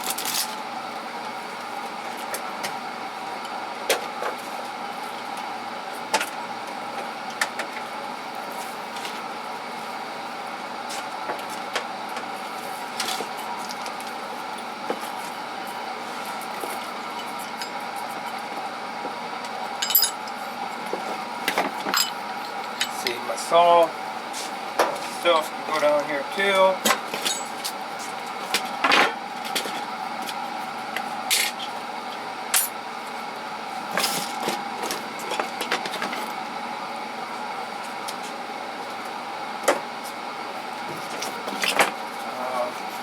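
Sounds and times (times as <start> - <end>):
steady background hum: 0.0 - 43.0
metal tools clinking: 19.8 - 20.4, 21.9 - 23.1, 27.2 - 27.6.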